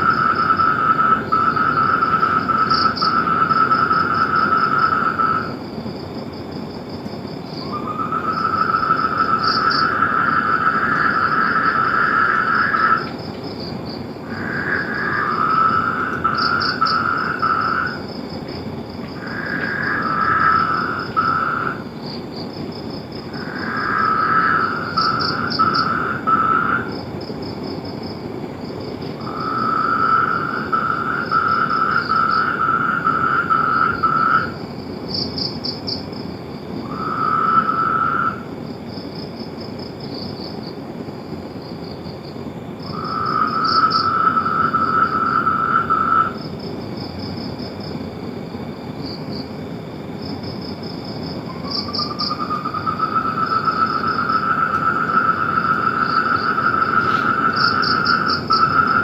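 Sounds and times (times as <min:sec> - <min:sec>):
animals calling in pulsed trills: 0:23.4 - 0:27.0, 0:51.5 - 0:59.0.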